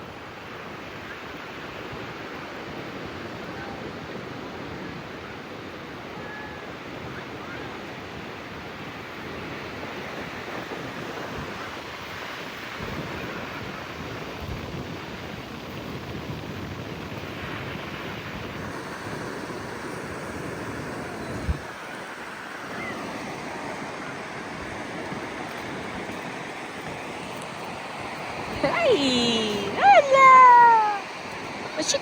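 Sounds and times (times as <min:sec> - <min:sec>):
ocean surf washing on beach: 0:00.0 - 0:32.0.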